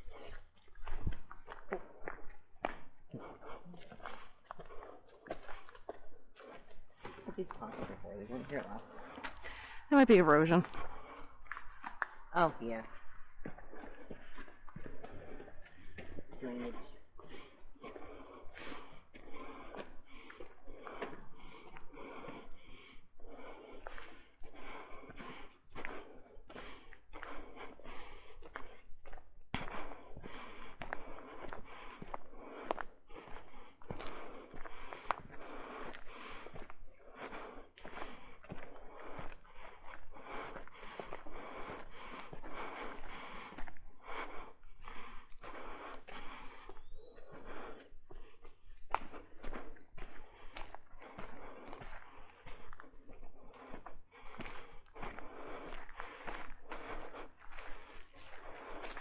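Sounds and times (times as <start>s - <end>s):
footsteps crunching on rocky trail: 0.0s - 9.5s, 12.9s - 59.0s.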